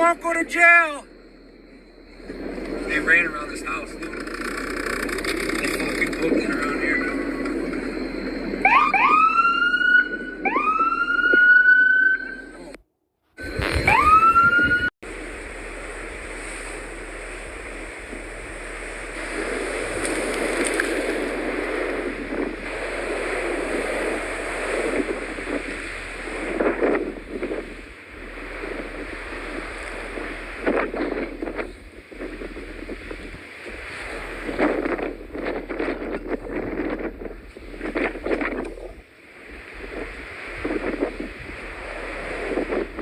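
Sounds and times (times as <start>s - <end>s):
blizzard wind gusting: 0.0s - 12.8s, 13.4s - 43.0s
siren whoop: 8.6s - 12.7s, 13.4s - 14.9s.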